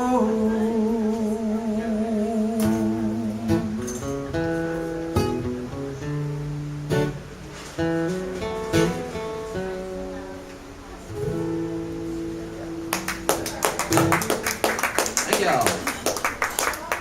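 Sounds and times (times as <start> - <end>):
acoustic guitar chords: 0.0 - 16.3
applause: 12.9 - 17.0.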